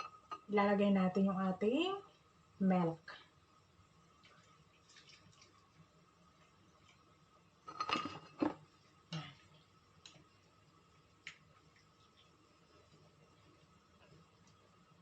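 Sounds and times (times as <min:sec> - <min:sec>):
kitchenware clinking and knocking: 0:07.7 - 0:08.6.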